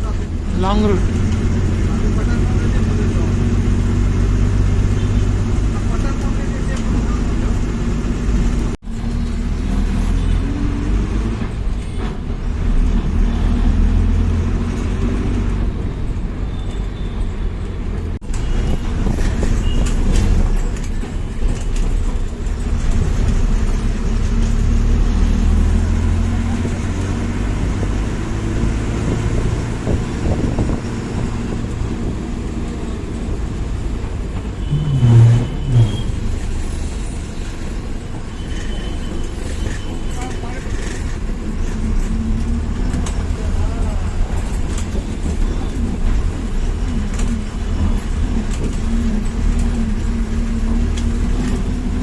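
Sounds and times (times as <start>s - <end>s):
bus engine rumble: 0.0s - 52.0s
road noise: 0.0s - 52.0s.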